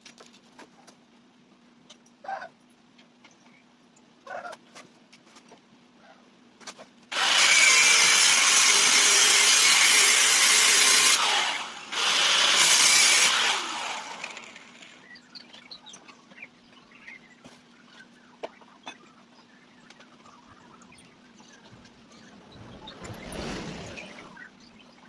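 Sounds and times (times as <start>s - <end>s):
power tool running: 7.1s - 15.0s.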